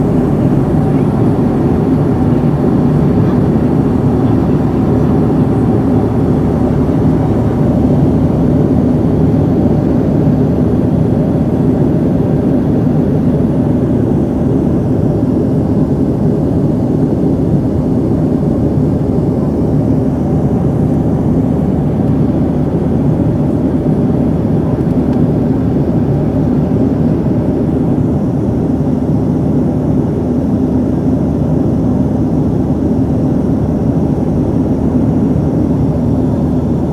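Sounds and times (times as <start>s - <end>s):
faint steady hum: 0.0s - 27.2s
airliner cabin engine drone: 0.0s - 36.9s.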